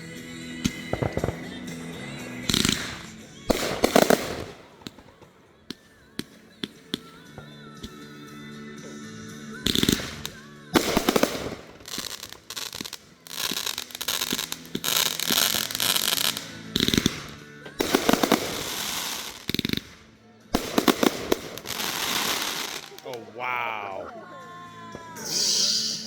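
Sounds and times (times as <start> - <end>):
firework crackling: 0.0 - 8.1, 9.5 - 24.0
firework bangs: 0.6 - 7.2, 9.6 - 20.0, 20.6 - 23.2.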